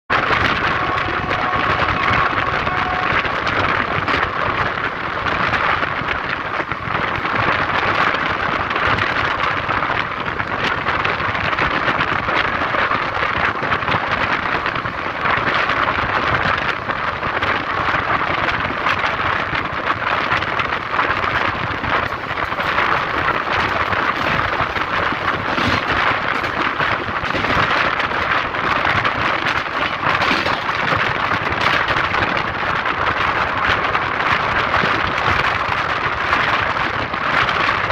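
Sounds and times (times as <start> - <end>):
moving train rushing: 0.1 - 11.6, 19.9 - 37.2.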